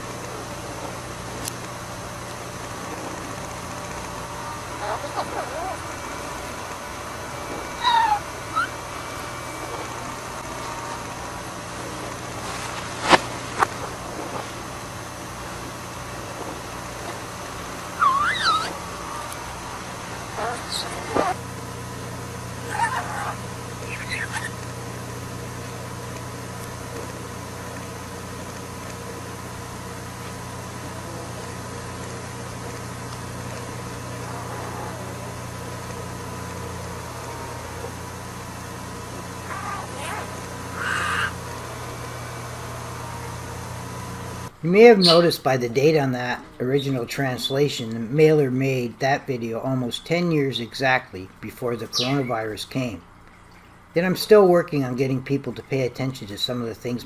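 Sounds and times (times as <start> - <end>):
low hum and hiss: 0.0 - 57.0
budgie chirp: 7.7 - 8.9, 17.9 - 18.8, 20.3 - 21.4, 22.6 - 24.6, 39.5 - 41.4, 44.9 - 45.4, 51.8 - 52.4.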